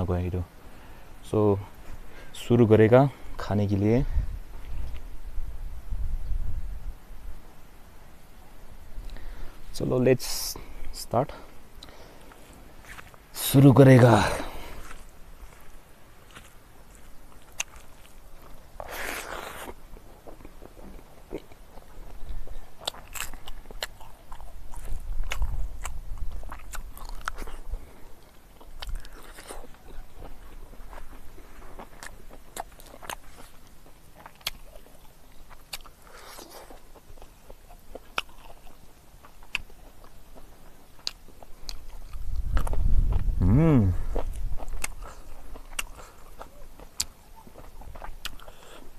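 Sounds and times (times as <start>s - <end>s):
person chewing: 16.3s - 48.9s.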